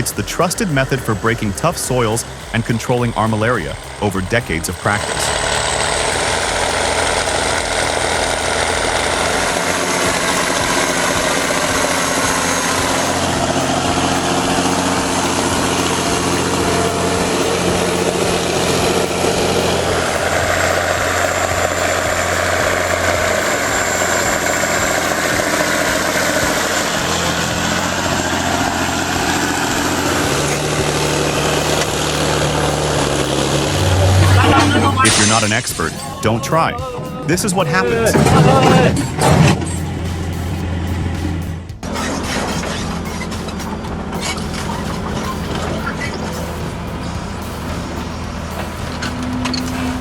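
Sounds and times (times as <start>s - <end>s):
heavy vehicle engine droning: 0.0s - 50.0s.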